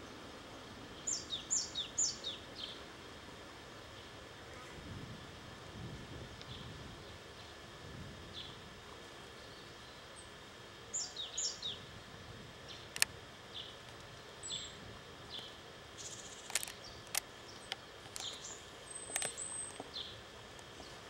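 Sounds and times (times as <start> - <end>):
sharp clicks: 15.4 - 19.9.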